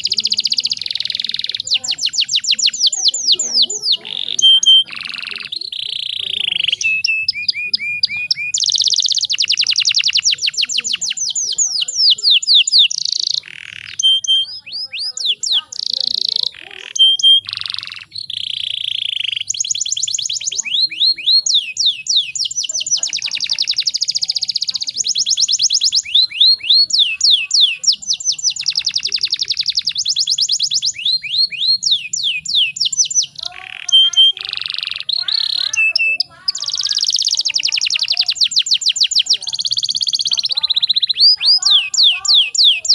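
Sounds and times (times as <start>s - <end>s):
canary singing trills: 0.0s - 42.9s.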